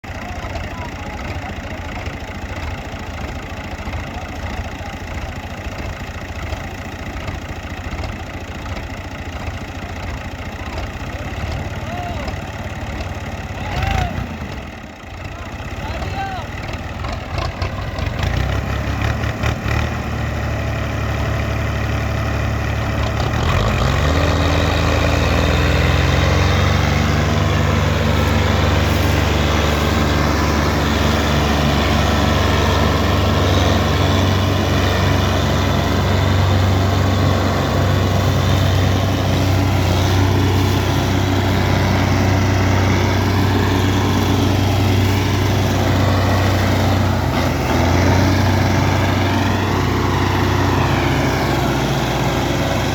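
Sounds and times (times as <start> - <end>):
diesel tractor engine revving: 0.0 - 52.9.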